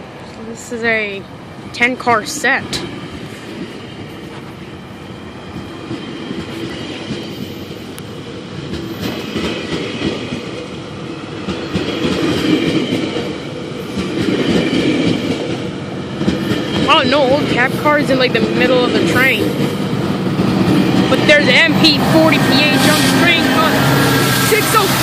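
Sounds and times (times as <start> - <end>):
train wheels clattering over rails: 5.5 - 25.0.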